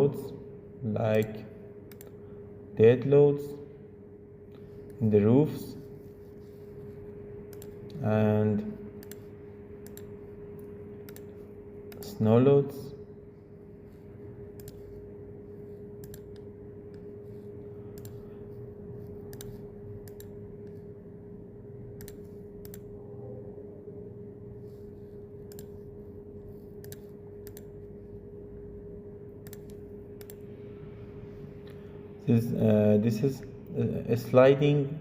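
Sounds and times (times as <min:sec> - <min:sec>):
electrical hum: 0:00.0 - 0:35.0
computer clicks: 0:01.1 - 0:02.2, 0:07.5 - 0:08.0, 0:09.0 - 0:12.1, 0:14.5 - 0:15.0, 0:16.0 - 0:17.1, 0:17.9 - 0:18.2, 0:19.3 - 0:20.8, 0:22.0 - 0:23.0, 0:25.4 - 0:25.8, 0:26.8 - 0:27.8, 0:29.4 - 0:30.4.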